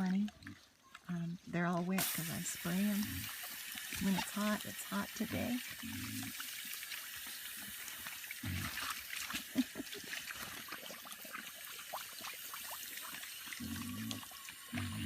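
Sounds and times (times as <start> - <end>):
water spraying from a hose: 1.9 - 15.0
piglets grunting: 3.0 - 3.4, 5.5 - 6.5, 8.4 - 10.2, 13.5 - 15.0.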